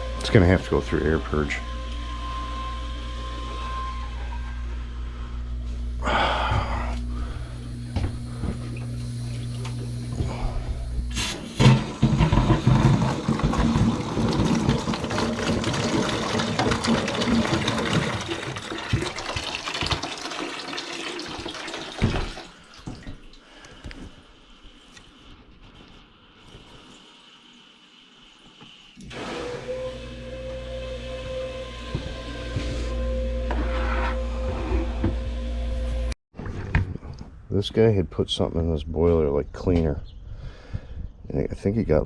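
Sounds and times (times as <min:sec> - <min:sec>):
low hum: 0:00.0 - 0:18.2.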